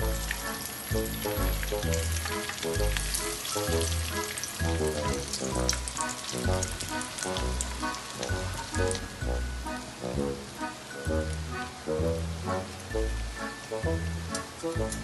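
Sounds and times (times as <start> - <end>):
fritters sizzling in oil: 0.0 - 11.8
background music with steady beat: 0.0 - 15.0.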